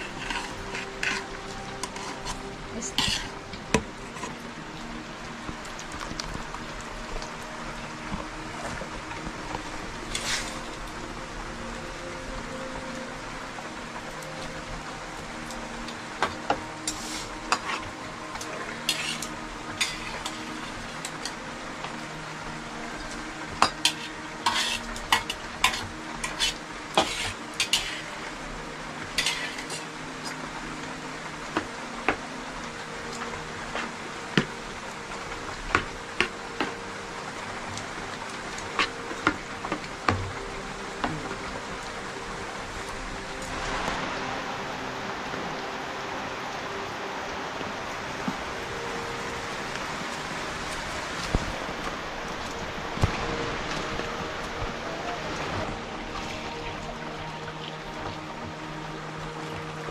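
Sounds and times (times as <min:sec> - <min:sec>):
steady hiss: 0:00.0 - 0:59.9
utensils clinking on pots and dishes: 0:01.9 - 0:03.4, 0:16.2 - 0:21.4, 0:23.6 - 0:28.1, 0:29.2 - 0:29.9.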